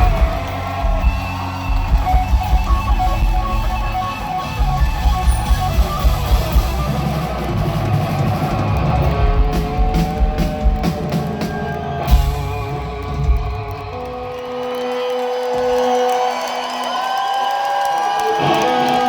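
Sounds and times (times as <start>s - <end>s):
drum kit beating: 0.0s - 14.6s
electric guitar: 0.0s - 19.0s.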